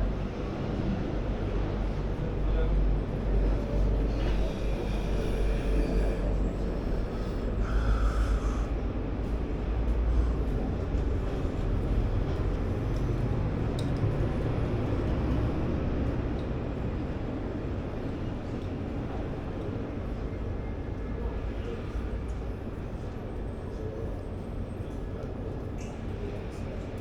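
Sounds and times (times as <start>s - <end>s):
low rumble of street traffic: 0.0s - 27.0s
faint voices: 0.1s - 10.4s.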